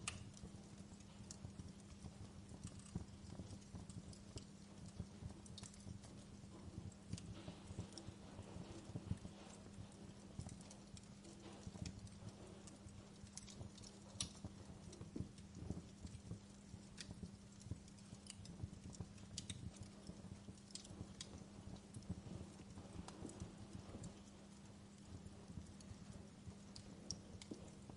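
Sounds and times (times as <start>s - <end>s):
wood fire crackling: 0.0s - 27.9s.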